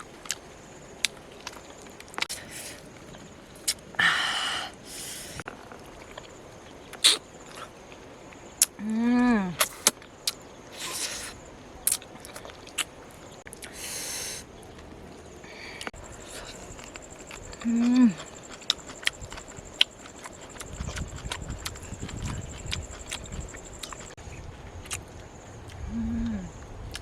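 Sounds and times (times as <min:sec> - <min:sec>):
sharp eating clicks: 0:06.9 - 0:07.8, 0:11.9 - 0:13.8, 0:16.2 - 0:24.2
chewing: 0:11.9 - 0:13.8, 0:15.8 - 0:24.2
person humming: 0:25.9 - 0:26.5.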